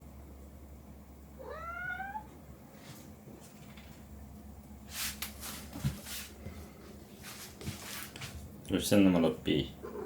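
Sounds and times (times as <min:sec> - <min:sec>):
cat meowing: 0:01.4 - 0:02.3.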